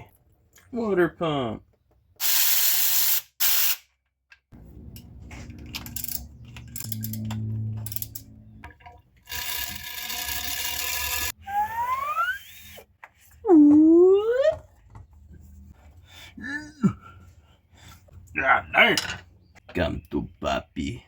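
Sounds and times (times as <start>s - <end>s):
air tool hissing: 2.2s - 3.8s
ratchet rattling: 9.3s - 11.3s
rising squeals: 11.4s - 12.8s.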